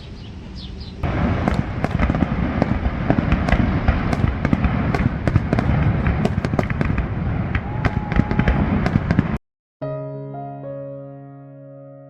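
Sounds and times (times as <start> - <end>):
continuous low rumble: 0.0 - 9.4
fireworks bangs and crackles: 1.0 - 9.4.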